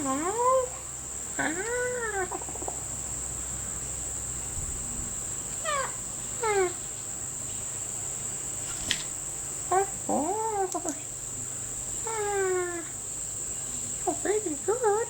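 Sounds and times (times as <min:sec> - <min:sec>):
insects droning: 0:00.0 - 0:15.0
sharp click: 0:08.7 - 0:09.2.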